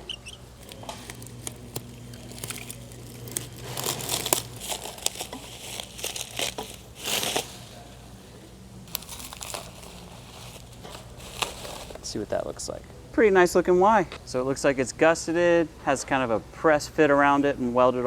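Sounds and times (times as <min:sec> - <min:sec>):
packaging crinkling and tearing: 0:00.4 - 0:12.3.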